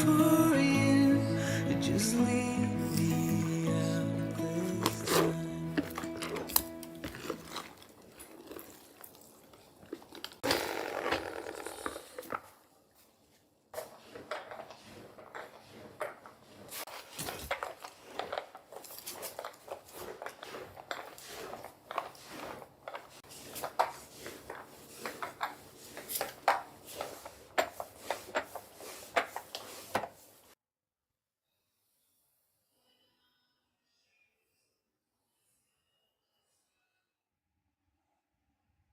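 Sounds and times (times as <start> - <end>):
household objects clicking and clinking: 4.8 - 12.6, 13.7 - 30.2
rubbing sound: 19.0 - 30.6.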